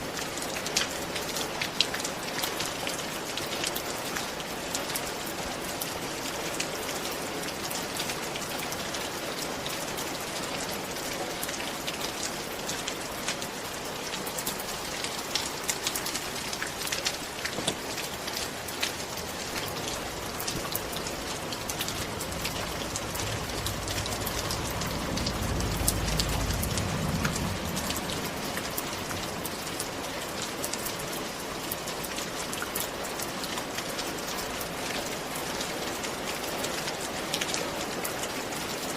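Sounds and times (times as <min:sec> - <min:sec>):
steady rain falling: 0:00.0 - 0:38.9
low rumble: 0:20.2 - 0:29.7.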